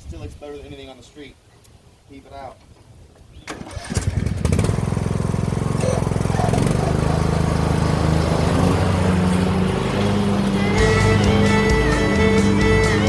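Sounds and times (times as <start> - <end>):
lawn tractor engine starting and running: 3.4 - 13.0.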